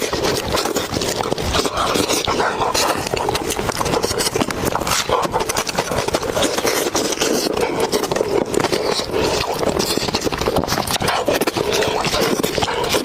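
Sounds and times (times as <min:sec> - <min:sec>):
wet chewing and smacking: 0:00.0 - 0:13.0.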